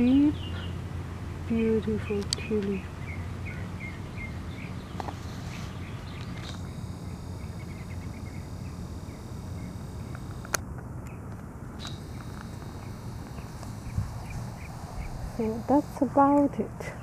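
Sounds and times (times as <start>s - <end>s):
small birds chirping: 0.0s - 17.0s
steady low hum: 0.0s - 17.0s
sharp click: 6.2s - 6.7s, 10.0s - 10.7s, 11.3s - 14.4s.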